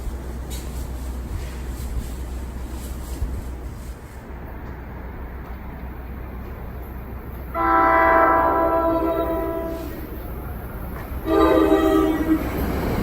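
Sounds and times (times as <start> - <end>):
low train rumble: 0.0 - 13.0
train horn blasts: 7.5 - 10.1, 11.2 - 12.6.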